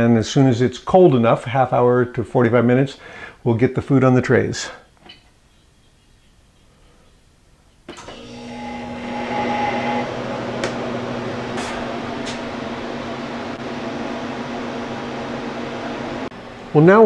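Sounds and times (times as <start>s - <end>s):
freeze dryer compressor humming: 8.0s - 17.0s.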